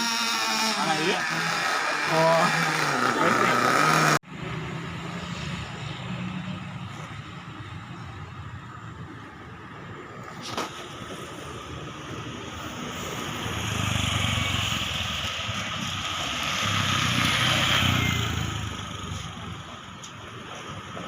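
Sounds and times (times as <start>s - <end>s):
motor vehicle passing by: 12.9s - 19.6s.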